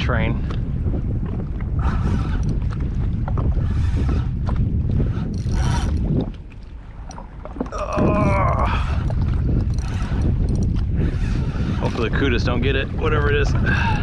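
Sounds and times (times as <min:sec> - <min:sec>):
choppy water: 0:00.0 - 0:14.0
wind buffeting microphone: 0:00.0 - 0:14.0.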